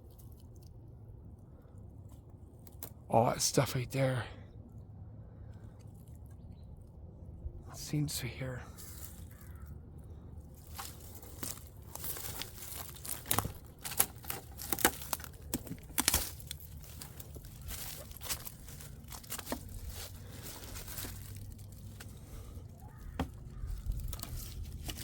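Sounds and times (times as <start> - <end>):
low steady rumble: 0.0 - 25.0
footsteps crunching on dry ground: 10.4 - 25.0.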